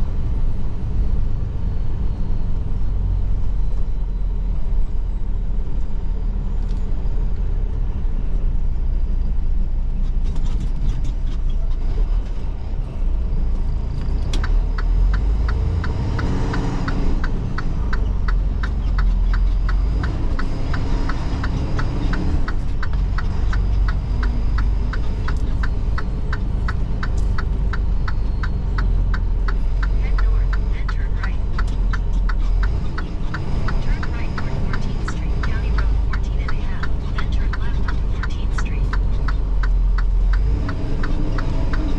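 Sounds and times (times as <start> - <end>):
truck engine rumbling: 0.0 - 41.9
rapid even ticking: 14.4 - 41.9.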